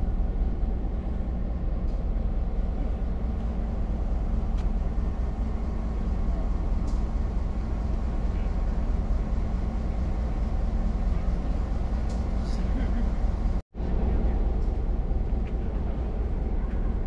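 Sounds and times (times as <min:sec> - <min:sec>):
train cars rumbling on track: 0:00.0 - 0:17.0.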